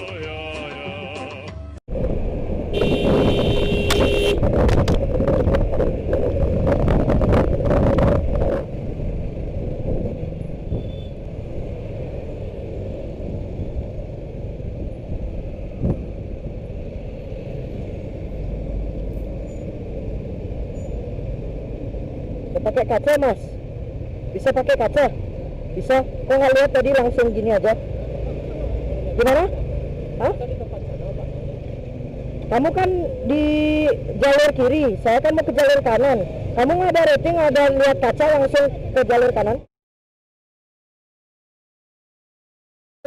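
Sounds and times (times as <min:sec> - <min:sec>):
road noise: 0:00.0 - 0:39.7
wind buffeting: 0:01.9 - 0:18.7
motorcycle engine noise: 0:01.9 - 0:22.6
vehicle horn: 0:02.7 - 0:04.4.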